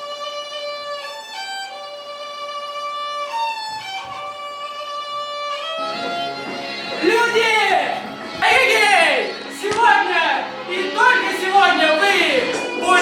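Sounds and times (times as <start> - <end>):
violin playing slow melody: 0.0 - 7.0.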